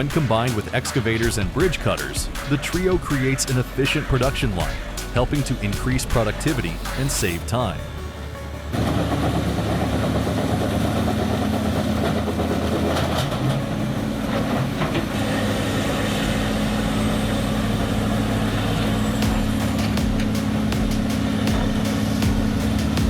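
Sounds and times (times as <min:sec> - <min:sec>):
grinder engine running: 0:08.7 - 0:23.0.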